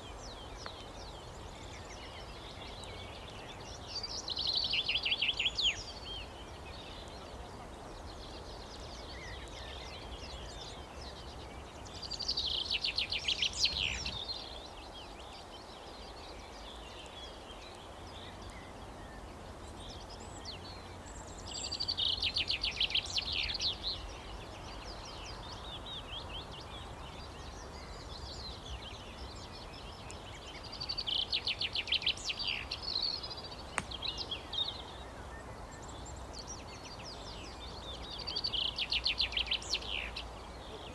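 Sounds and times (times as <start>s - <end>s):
outdoor background hiss: 0.0s - 40.9s.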